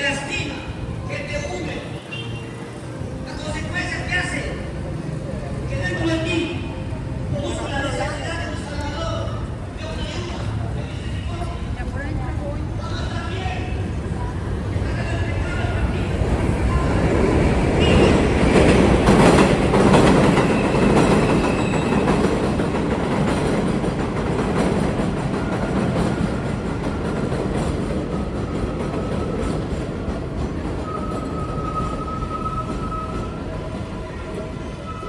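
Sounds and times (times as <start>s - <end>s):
elevated train rumbling: 0.0s - 35.0s
high wheel squeal: 20.2s - 22.4s, 30.7s - 35.0s.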